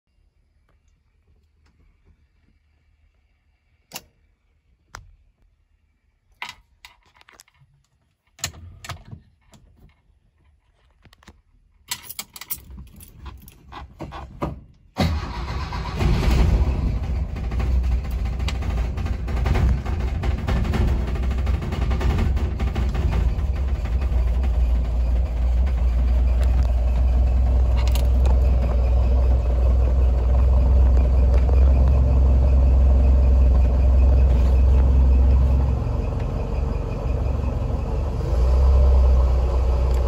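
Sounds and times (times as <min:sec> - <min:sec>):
keys jangling: 0:11.9 - 0:13.9
car engine cranking and starting: 0:12.0 - 0:40.0.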